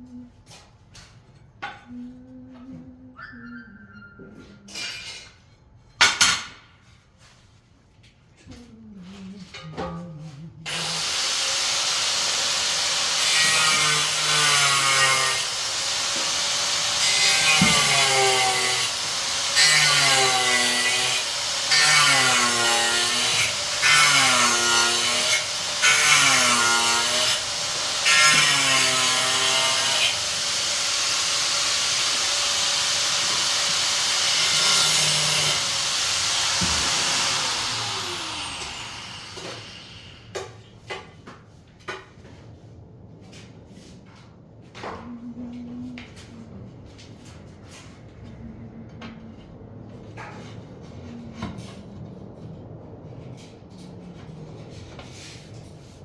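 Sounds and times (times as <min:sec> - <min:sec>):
electric power tool cutting: 0:10.7 - 0:40.3.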